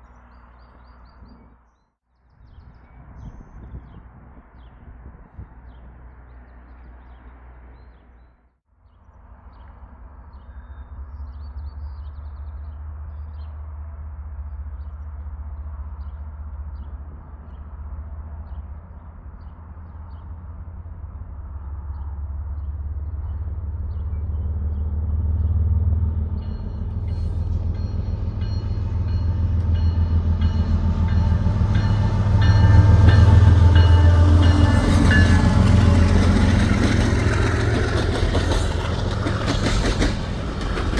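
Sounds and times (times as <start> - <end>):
locomotive engine rumble: 13.6 - 40.9
higher ringing tones: 26.5 - 36.2.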